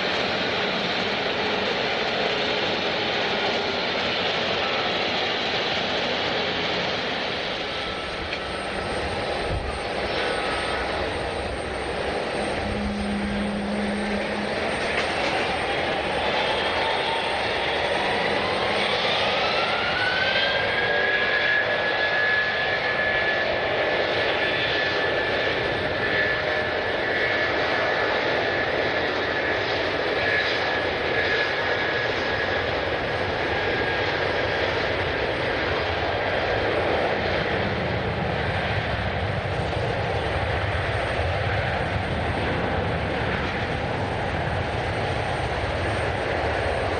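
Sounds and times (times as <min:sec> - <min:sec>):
jet engines running: 0:00.0 - 0:46.9
engine whine rising in pitch: 0:06.7 - 0:26.9.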